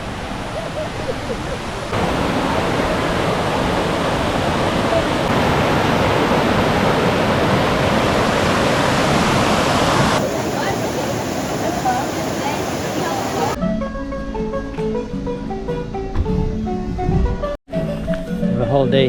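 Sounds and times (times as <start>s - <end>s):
rushing water: 0.0s - 13.6s.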